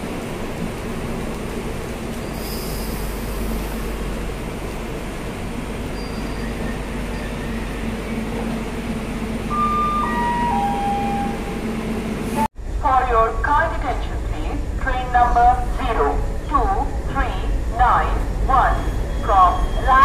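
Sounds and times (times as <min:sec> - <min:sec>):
train coaches rolling: 0:00.0 - 0:12.5
three-note chime: 0:09.5 - 0:11.6.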